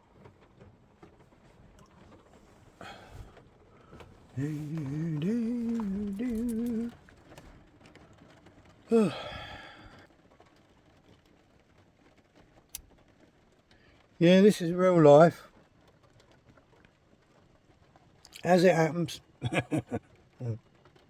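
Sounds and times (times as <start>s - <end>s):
man humming: 4.4s - 7.0s, 8.9s - 9.6s.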